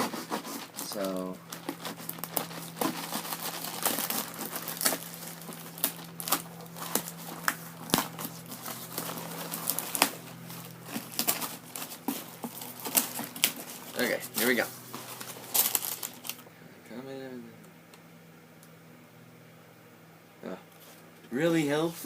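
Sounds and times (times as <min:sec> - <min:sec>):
packaging crinkling and rustling: 0:00.0 - 0:16.4.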